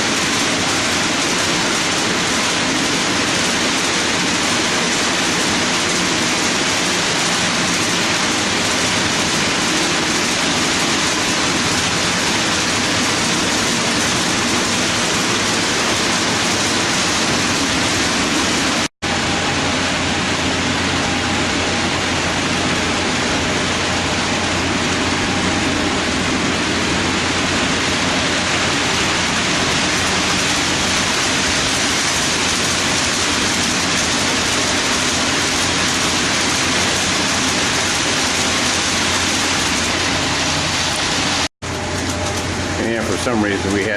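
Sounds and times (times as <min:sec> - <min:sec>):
model train wheels rumbling on rail: 0:00.0 - 0:43.9
steady low hum: 0:00.0 - 0:43.9.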